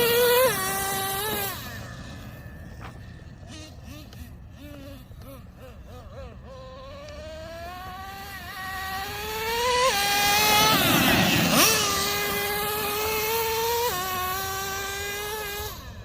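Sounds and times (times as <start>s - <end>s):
rc truck engine revving: 0.0s - 16.0s.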